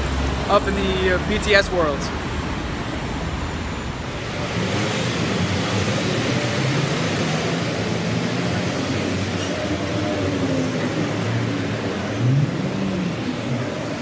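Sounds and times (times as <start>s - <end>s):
busy street traffic: 0.0s - 14.0s
low engine hum: 0.0s - 14.0s.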